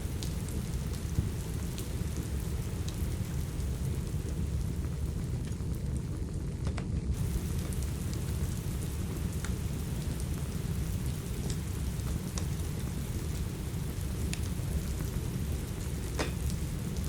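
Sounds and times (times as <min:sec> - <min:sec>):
steady rain rumbling: 0:00.0 - 0:17.0
wood fire crackling: 0:00.0 - 0:17.0.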